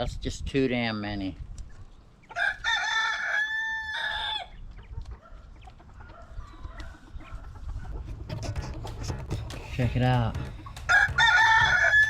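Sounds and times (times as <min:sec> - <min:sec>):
chickens calling: 0:00.9 - 0:12.0
rooster crowing: 0:02.4 - 0:04.5, 0:10.9 - 0:12.0.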